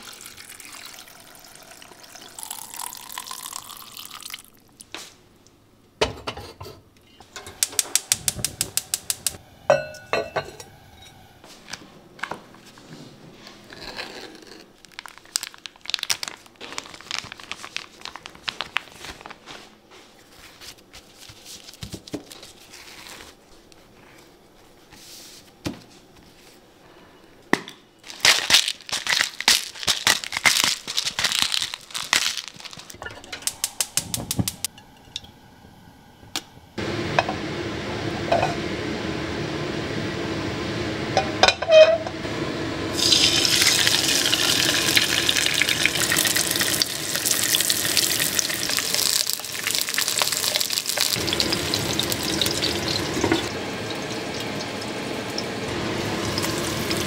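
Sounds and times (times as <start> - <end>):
food frying in hot oil: 42.9 - 57.0.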